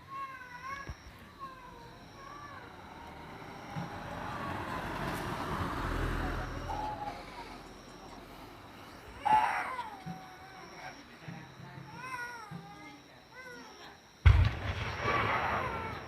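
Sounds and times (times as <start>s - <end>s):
vehicle passing by: 2.7s - 8.9s.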